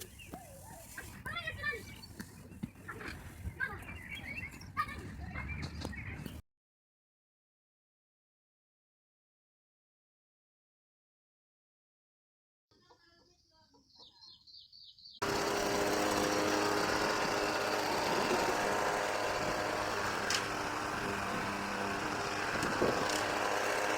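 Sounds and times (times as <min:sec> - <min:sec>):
loud steady motor: 0:15.2 - 0:23.9.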